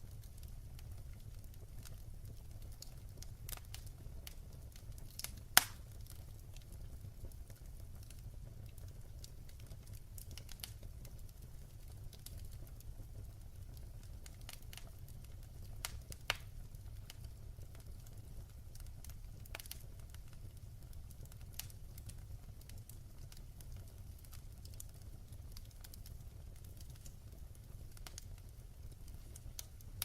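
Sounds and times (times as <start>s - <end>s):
wood fire crackling: 0.0s - 30.0s
loud pop from the fire: 5.2s - 5.9s.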